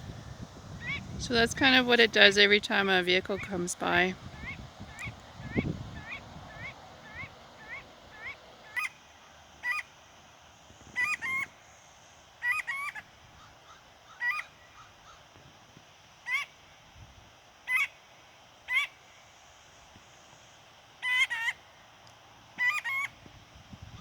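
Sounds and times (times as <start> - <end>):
bird sharp calls: 0.7 - 10.0, 10.9 - 15.4, 16.2 - 16.6, 17.7 - 18.0, 18.7 - 19.1, 21.0 - 21.6, 22.6 - 23.2.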